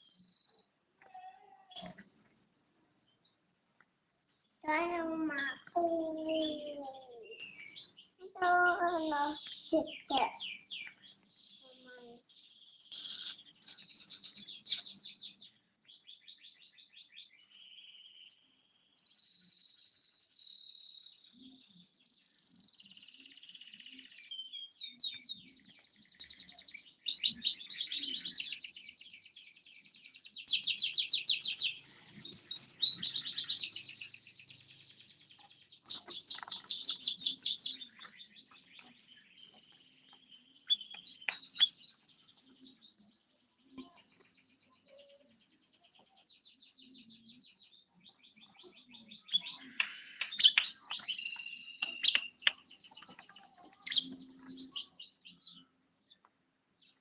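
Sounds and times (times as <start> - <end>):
bird singing rapid high trills: 4.5 - 22.2, 22.8 - 39.6, 46.3 - 53.2.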